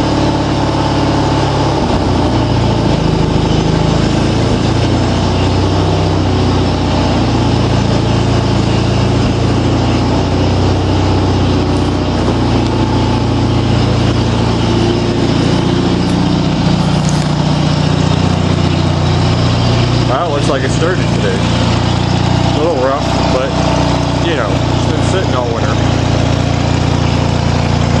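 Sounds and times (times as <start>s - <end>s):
lawn tractor engine running: 0.0s - 28.0s.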